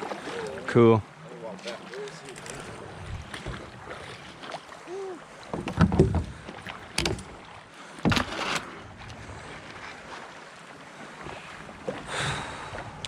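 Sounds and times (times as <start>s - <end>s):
low wash of water: 0.0s - 13.0s
dull knocks in kayak: 5.4s - 7.4s, 8.0s - 8.6s.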